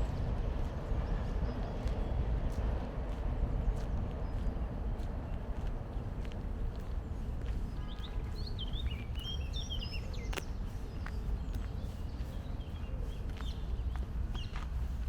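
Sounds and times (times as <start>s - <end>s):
low outdoor rumble: 0.0s - 7.8s
footsteps on park path: 0.0s - 15.0s
songbirds chirping: 0.0s - 15.0s.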